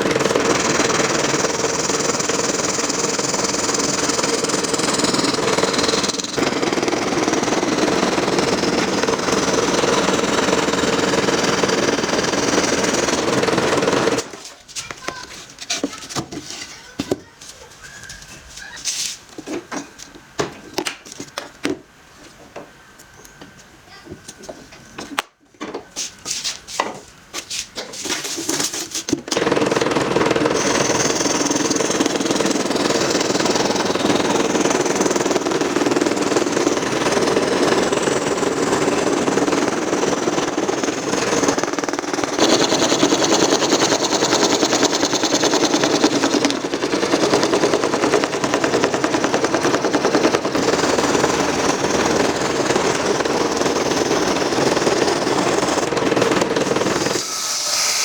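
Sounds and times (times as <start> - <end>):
power tool buzzing: 0.0 - 15.2, 29.3 - 58.0.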